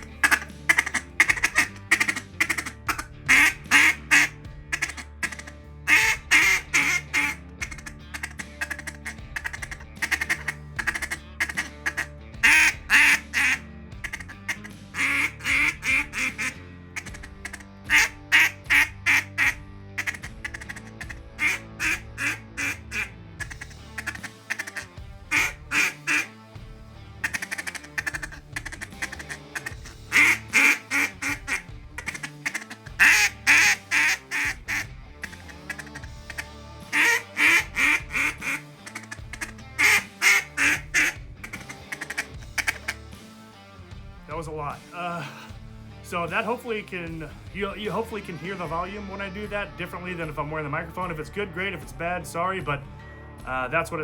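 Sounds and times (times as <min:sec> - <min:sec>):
duck call quacks: 0:00.0 - 0:26.4, 0:27.2 - 0:43.0.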